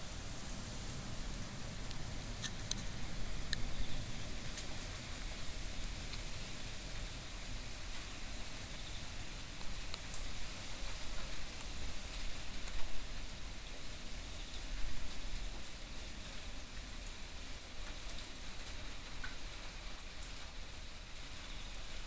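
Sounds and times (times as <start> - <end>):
heavy rain hissing: 0.0 - 17.1
raindrop ticks: 1.6 - 6.4, 9.6 - 10.3, 17.8 - 19.6.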